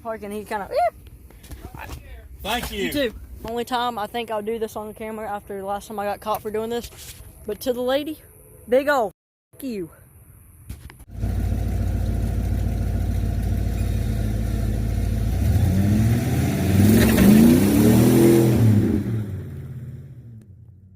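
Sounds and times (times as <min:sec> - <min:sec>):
pickup truck engine revving: 0:11.1 - 0:20.4.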